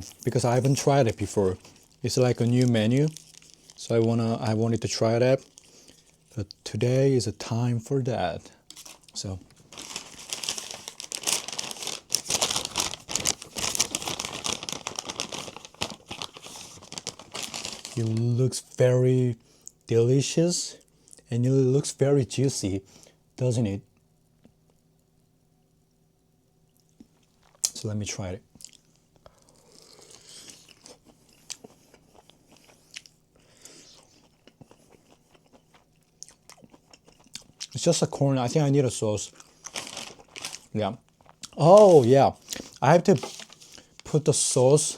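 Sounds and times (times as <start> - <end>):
food packaging crinkling: 0.0 - 7.0, 8.7 - 18.7, 28.7 - 44.9
person crunching and chewing: 1.6 - 4.1, 28.6 - 37.8.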